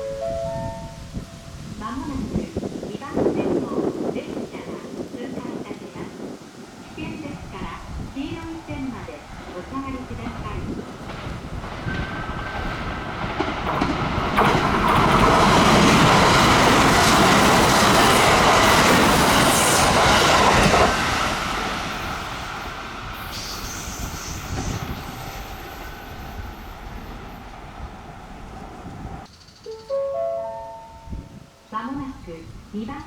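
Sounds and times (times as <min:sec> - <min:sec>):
electric train passing: 0:00.0 - 0:04.4, 0:05.5 - 0:32.8
wheels clattering over rail joints: 0:09.3 - 0:23.0.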